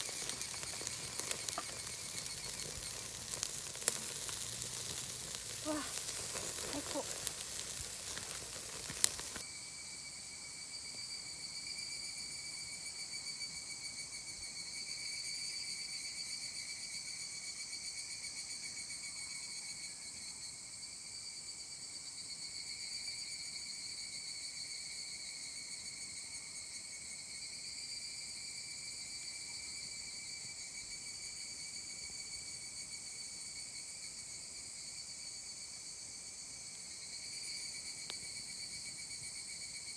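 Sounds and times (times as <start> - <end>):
meat sizzling on charcoal grill: 0.0 - 9.4
crickets chirring: 0.0 - 20.9, 22.0 - 39.9.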